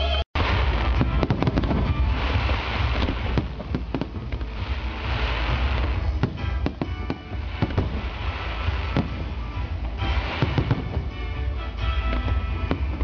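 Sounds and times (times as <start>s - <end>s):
fireworks bangs and crackling: 0.4s - 13.0s
fireworks hissing: 0.4s - 13.0s.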